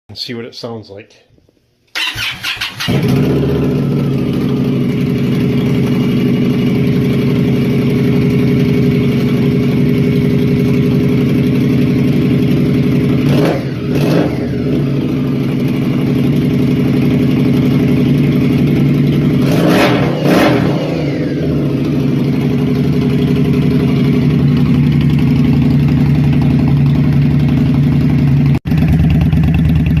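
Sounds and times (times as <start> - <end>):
motorcycle engine idling and revving: 2.0 - 30.0.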